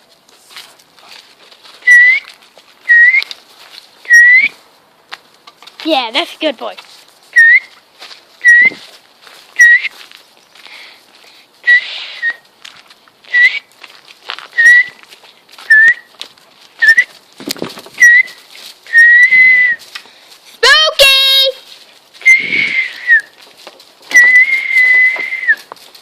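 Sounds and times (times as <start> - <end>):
short whistled note: 24.1 - 25.7.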